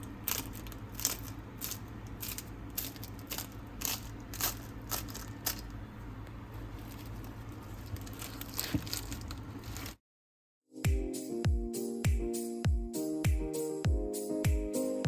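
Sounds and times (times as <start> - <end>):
crisp pastry crunching: 0.0 - 5.9, 6.5 - 10.0.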